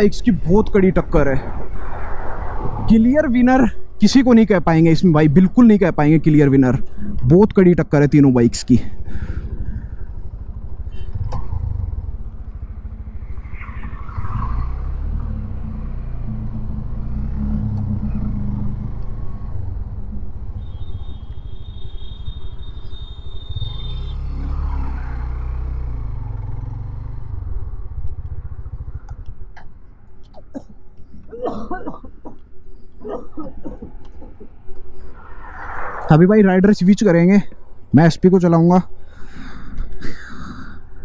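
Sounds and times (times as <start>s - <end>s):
motorcycle engine running: 9.2s - 13.4s.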